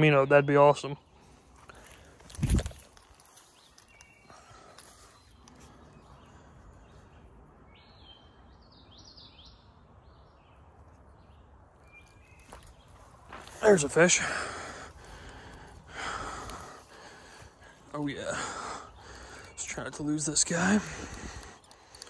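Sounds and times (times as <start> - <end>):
faint outdoor ambience: 0.0 - 22.0
songbird chirping: 0.0 - 22.0.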